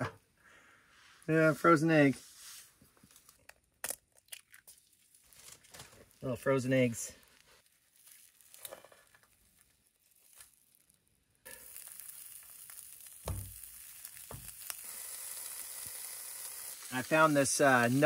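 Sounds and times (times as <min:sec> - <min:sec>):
food sizzling in a pan: 0:11.5 - 0:18.0.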